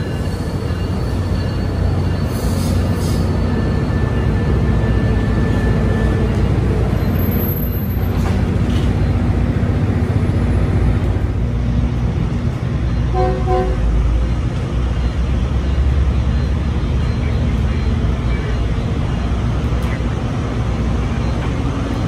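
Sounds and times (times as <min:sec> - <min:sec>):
high brake squeal: 0:00.0 - 0:09.1
diesel locomotive engine rumble: 0:00.0 - 0:22.0.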